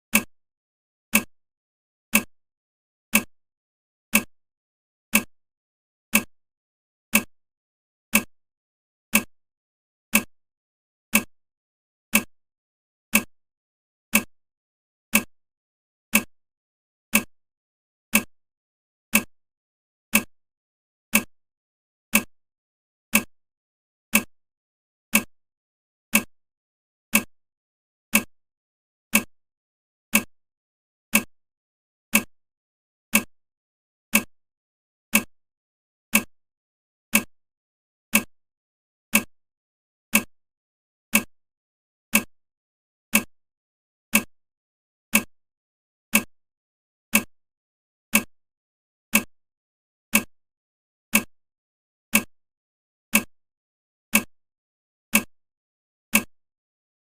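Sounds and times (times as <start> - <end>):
clock ticks: 0.1 - 0.3, 1.1 - 1.4, 2.1 - 2.3, 3.1 - 3.4, 4.1 - 4.3, 5.1 - 5.4, 6.1 - 6.4, 7.1 - 7.4, 8.1 - 8.3, 9.1 - 9.4, 10.1 - 10.4, 11.1 - 11.3, 12.1 - 12.4, 13.1 - 13.4, 14.1 - 14.4, 15.1 - 15.4, 16.1 - 16.4, 17.1 - 17.4, 18.1 - 18.4, 19.1 - 19.4, 20.1 - 20.4, 21.1 - 21.4, 22.1 - 22.3, 23.1 - 23.4, 24.1 - 24.4, 25.1 - 25.4, 26.1 - 26.4, 27.1 - 27.4, 28.1 - 28.4, 29.1 - 29.3, 30.1 - 30.4, 31.1 - 31.4, 32.1 - 32.4, 33.1 - 33.4, 34.1 - 34.4, 35.1 - 35.4, 36.1 - 36.4, 37.1 - 37.4, 38.1 - 38.4, 39.1 - 39.4, 40.1 - 40.4, 41.1 - 41.4, 42.1 - 42.4, 43.1 - 43.4, 44.1 - 44.4, 45.1 - 45.4, 46.1 - 46.4, 47.1 - 47.4, 48.1 - 48.3, 49.1 - 49.3, 50.1 - 50.4, 51.1 - 51.3, 52.1 - 52.4, 53.1 - 53.4, 54.1 - 54.3, 55.1 - 55.3, 56.1 - 56.4.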